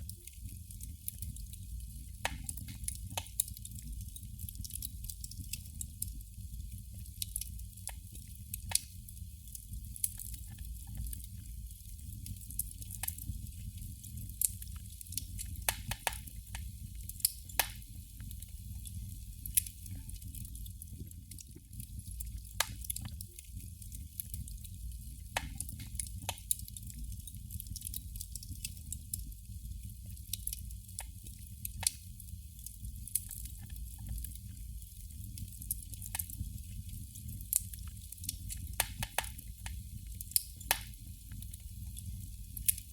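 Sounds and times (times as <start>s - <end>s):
candle flame crackling: 0.0s - 42.9s.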